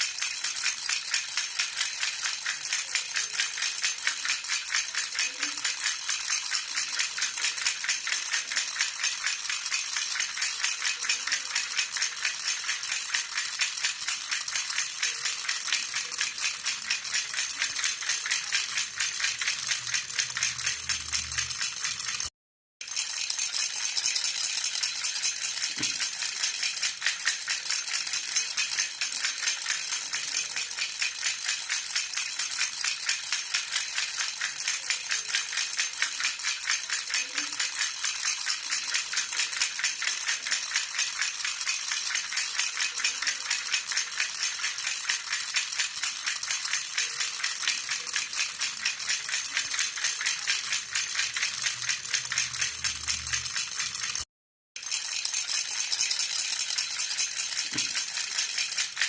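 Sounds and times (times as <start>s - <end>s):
baby rattle shaken rapidly: 0.0s - 59.0s.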